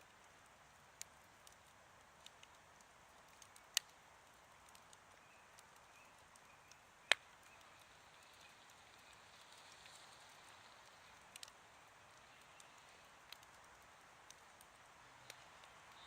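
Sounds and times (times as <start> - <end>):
campfire crackling: 0.0 - 16.0
sharp fire pops: 1.0 - 10.0.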